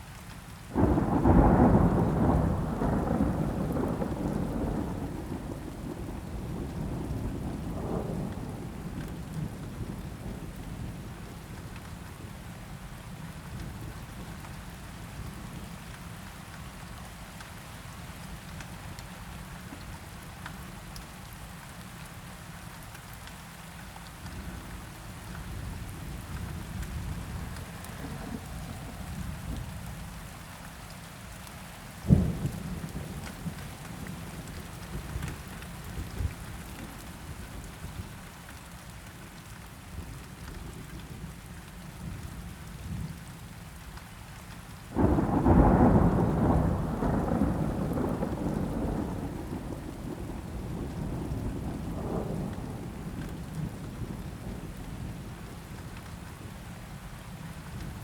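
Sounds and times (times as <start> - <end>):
steady rain: 0.0 - 58.0
thunder rolling: 45.0 - 53.0.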